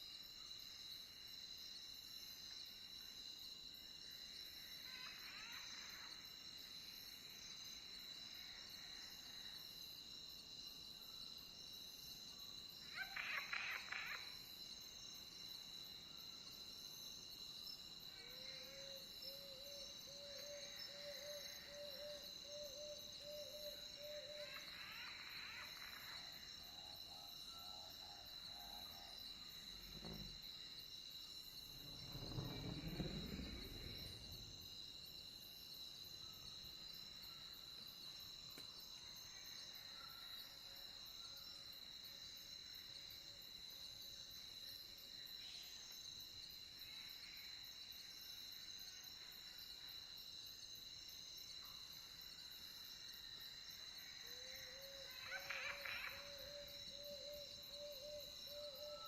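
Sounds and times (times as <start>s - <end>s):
crickets trilling: 0.0s - 59.0s
animal calls: 12.9s - 14.3s, 55.0s - 56.5s.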